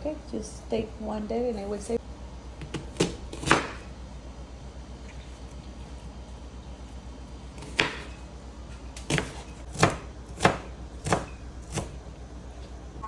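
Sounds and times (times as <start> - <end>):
knife chopping on cutting board: 2.6 - 3.8, 7.6 - 8.2, 9.0 - 12.0.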